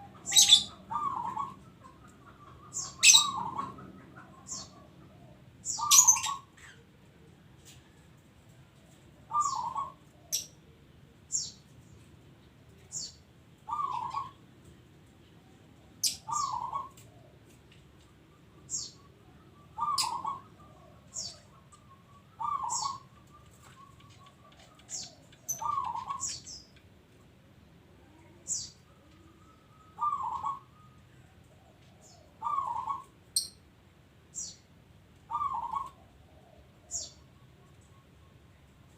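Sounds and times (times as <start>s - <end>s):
small birds chirping: 0.0s - 7.0s, 8.8s - 10.6s, 11.2s - 14.4s, 15.2s - 27.4s, 28.0s - 38.9s
dove cooing: 0.0s - 8.0s, 9.2s - 10.6s, 13.7s - 14.4s, 16.0s - 17.5s, 18.7s - 26.5s, 28.0s - 33.2s, 35.3s - 37.7s.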